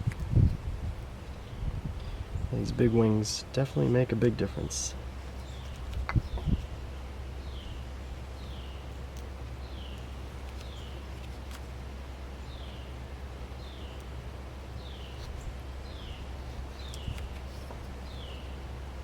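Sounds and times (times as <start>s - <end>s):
steady low rumble: 0.0s - 19.0s
bird chirping: 7.4s - 9.0s, 9.6s - 11.1s, 12.4s - 13.0s, 13.6s - 18.6s.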